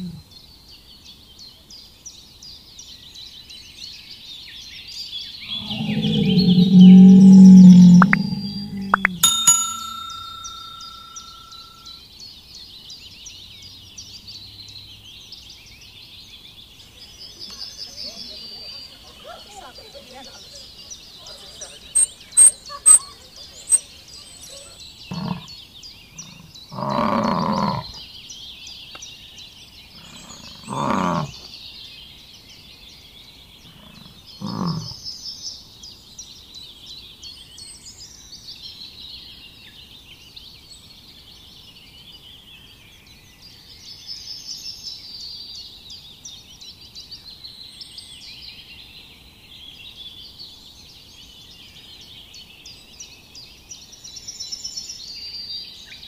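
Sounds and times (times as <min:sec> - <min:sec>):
deep animal calls: 0:00.0 - 0:00.2, 0:05.5 - 0:09.2, 0:21.2 - 0:25.5, 0:26.2 - 0:28.0, 0:30.0 - 0:31.4, 0:33.7 - 0:35.0
wild birds chirping: 0:00.0 - 0:01.2, 0:04.2 - 0:12.0, 0:14.1 - 0:36.0.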